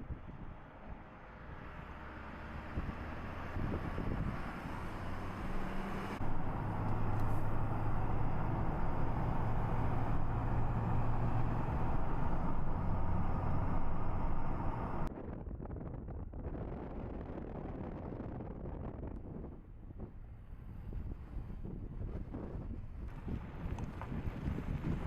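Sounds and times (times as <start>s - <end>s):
tyre and road noise: 0.0s - 15.1s, 20.2s - 25.0s
car engine hum: 0.4s - 15.1s.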